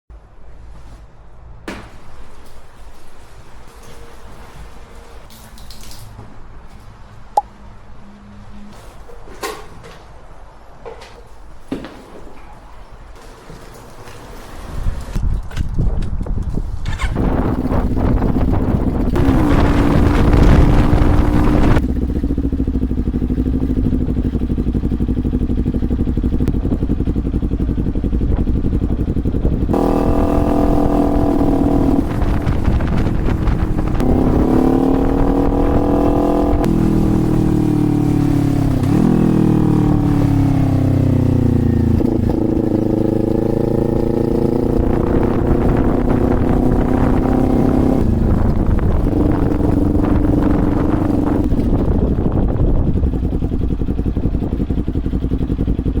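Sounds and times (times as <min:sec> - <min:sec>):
wind rumble on microphone: 0:14.6 - 0:56.0
motorcycle engine revving: 0:16.8 - 0:56.0
loud rushing noise: 0:17.0 - 0:21.8, 0:29.7 - 0:37.2.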